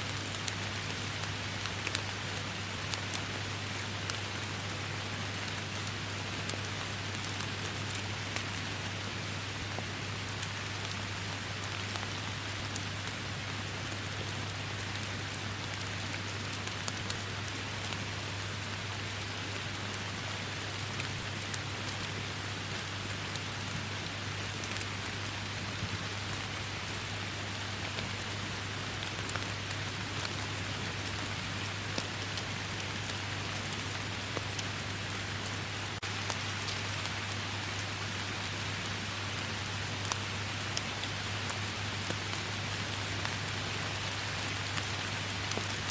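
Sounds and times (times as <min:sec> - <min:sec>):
steady rain falling: 0:00.0 - 0:45.9
raindrops ticking: 0:44.4 - 0:45.9.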